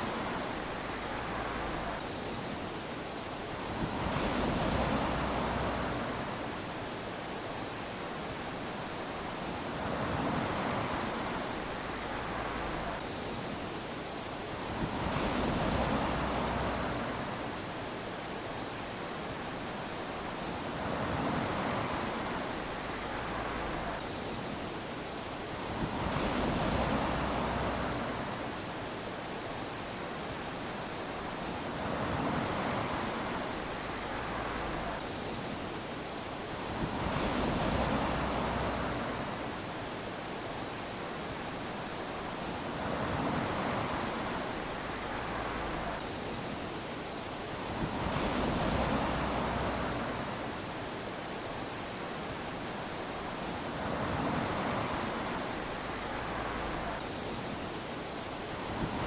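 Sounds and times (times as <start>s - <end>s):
small waves washing on sand: 0.0s - 59.0s.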